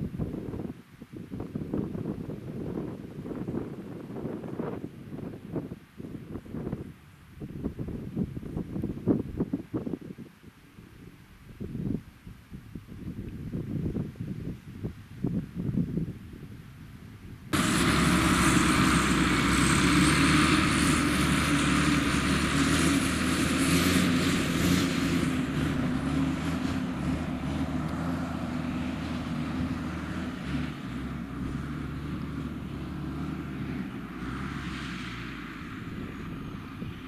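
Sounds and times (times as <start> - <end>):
diesel engine running: 16.8 - 37.0.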